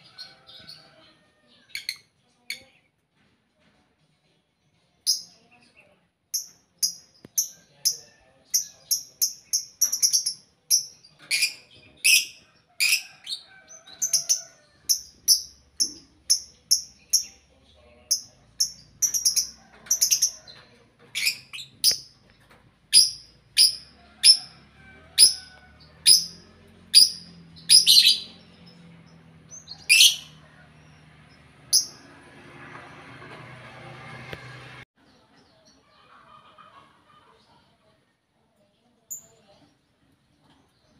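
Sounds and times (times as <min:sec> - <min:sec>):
lovebirds chirping: 0:05.1 - 0:24.5, 0:25.2 - 0:32.0.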